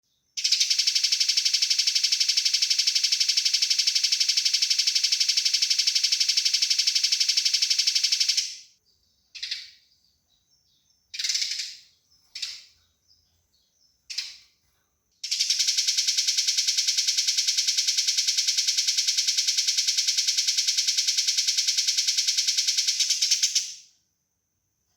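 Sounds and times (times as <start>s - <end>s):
single bird chirps: 0.4s - 14.6s.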